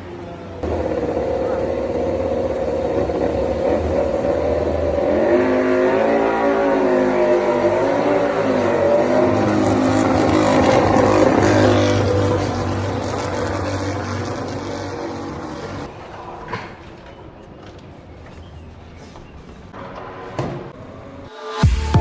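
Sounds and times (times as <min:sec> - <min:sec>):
racing motorcycle engine: 0:00.4 - 0:15.9.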